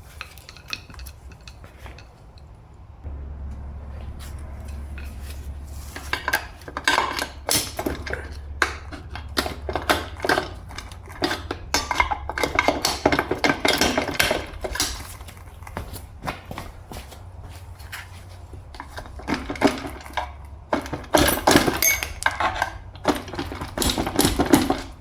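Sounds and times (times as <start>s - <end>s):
metal parts clinking and clattering: 4.1s - 15.8s, 18.8s - 25.0s.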